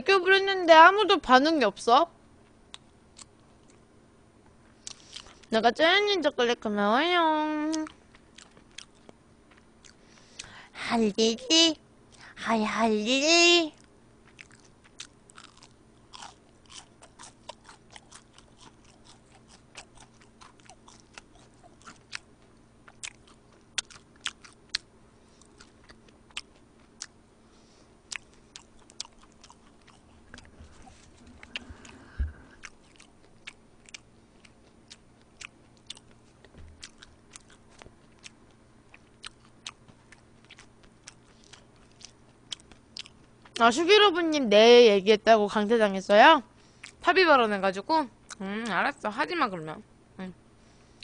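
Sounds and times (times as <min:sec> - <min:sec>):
person chewing food: 0:02.4 - 0:03.8, 0:04.8 - 0:05.5, 0:07.7 - 0:10.6, 0:13.8 - 0:43.6.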